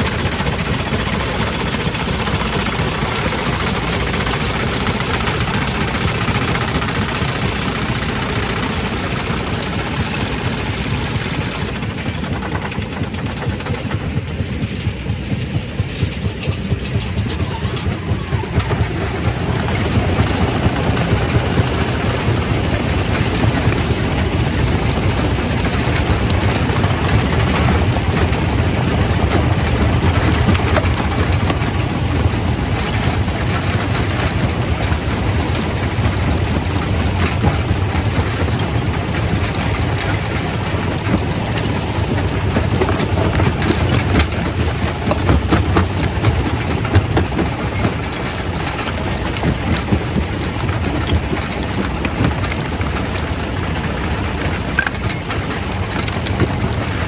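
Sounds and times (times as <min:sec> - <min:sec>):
rock crusher rumbling: 0:00.0 - 0:57.0
rocks knocking and clattering: 0:15.8 - 0:57.0.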